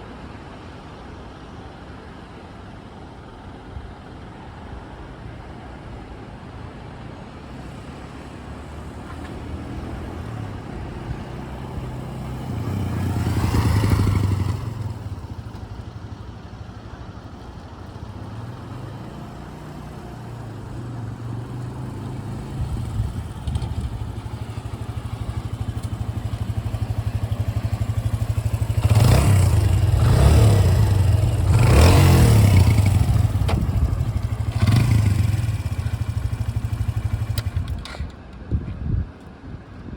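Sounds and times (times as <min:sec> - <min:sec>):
motorcycle engine running: 0:10.0 - 0:38.1.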